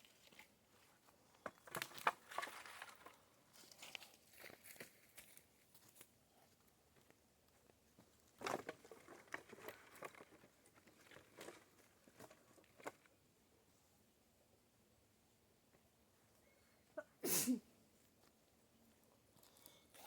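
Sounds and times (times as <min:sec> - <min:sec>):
dry twigs and leaves crackling: 0:01.4 - 0:06.1.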